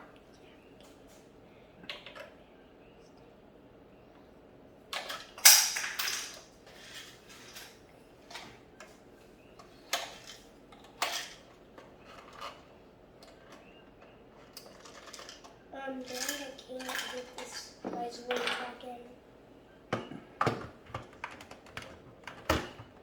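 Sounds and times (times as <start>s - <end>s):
plastic toy pieces clattering: 4.9s - 8.5s, 9.9s - 12.7s, 14.4s - 18.8s.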